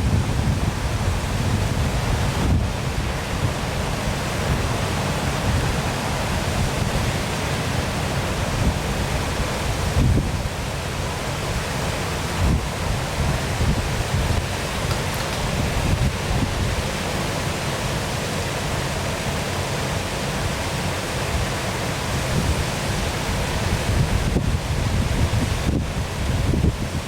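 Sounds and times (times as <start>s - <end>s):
wind buffeting microphone: 0.0s - 7.2s, 8.4s - 10.6s, 11.4s - 16.9s, 22.1s - 27.0s
waterfall rushing: 0.0s - 27.0s.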